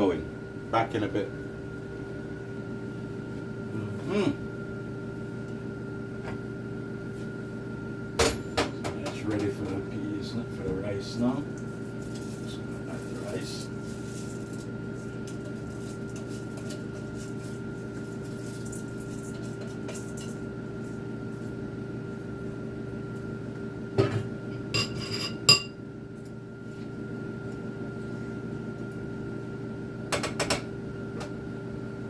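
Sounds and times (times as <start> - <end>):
kitchen exhaust fan humming: 0.0 - 32.0.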